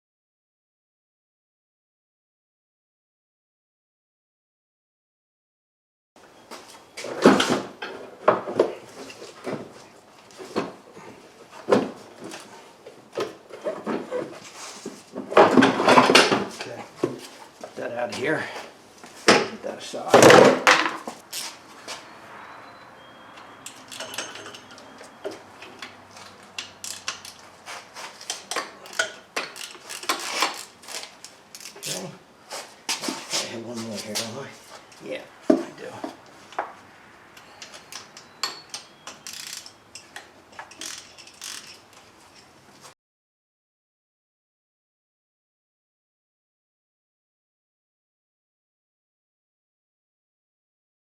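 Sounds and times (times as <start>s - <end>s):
car parts and tools clattering: 7.0s - 9.8s, 10.4s - 17.5s, 20.2s - 32.0s, 34.8s - 42.6s
metal tools clinking: 23.4s - 32.0s, 37.4s - 42.6s.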